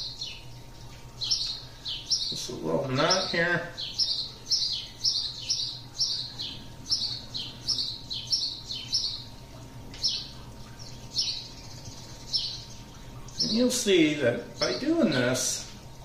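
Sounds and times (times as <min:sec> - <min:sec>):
bird chirping: 0:00.0 - 0:15.8.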